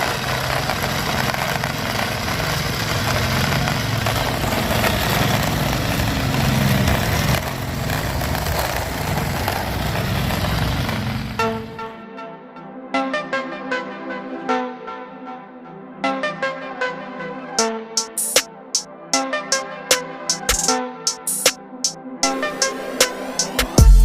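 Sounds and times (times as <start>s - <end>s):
engine running steadily: 0.0s - 11.7s.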